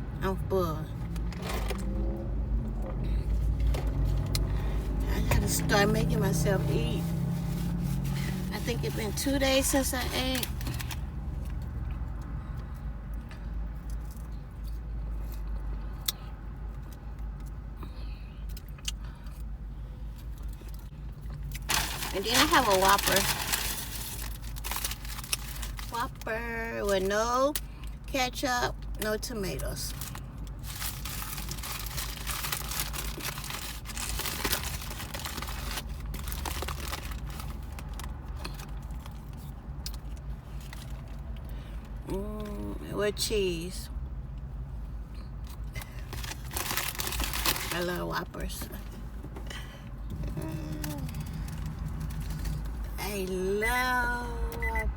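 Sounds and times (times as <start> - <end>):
paper wrapper crinkling: 21.6 - 25.9, 29.9 - 39.1, 45.8 - 47.8.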